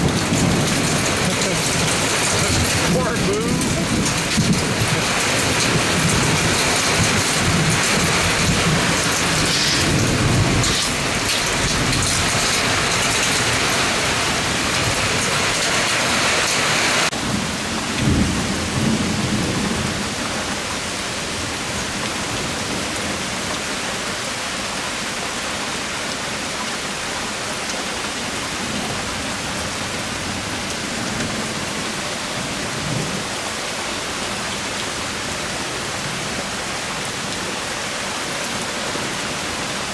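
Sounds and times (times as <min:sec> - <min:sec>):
low thunder rumbles: 0:00.0 - 0:20.6
heavy rain pouring: 0:00.0 - 0:39.9.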